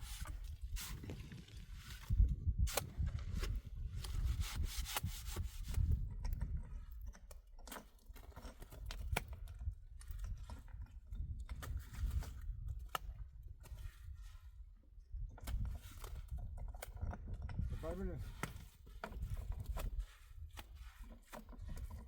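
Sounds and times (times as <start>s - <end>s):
rubbing and scraping: 0.0s - 9.1s, 15.4s - 22.0s.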